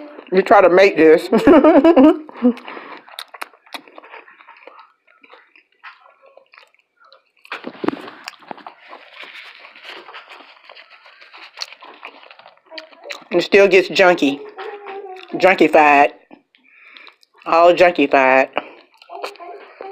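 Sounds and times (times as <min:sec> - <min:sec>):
wet chewing and squelching: 0:01.5 - 0:19.9
wet mouth clicks: 0:02.5 - 0:13.4, 0:16.3 - 0:17.5.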